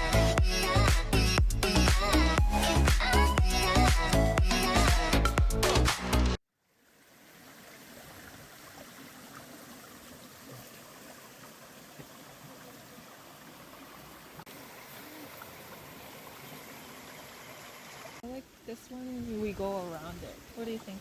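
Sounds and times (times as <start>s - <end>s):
music: 0.0s - 6.4s
running water: 0.0s - 21.0s.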